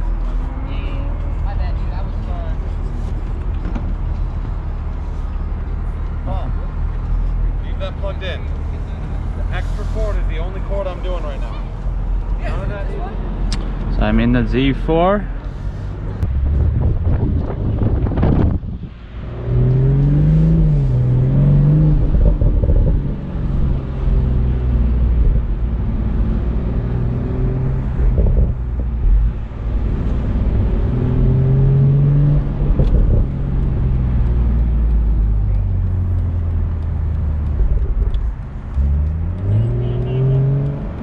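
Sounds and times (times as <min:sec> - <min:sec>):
car engine accelerating: 0:00.0 - 0:41.0.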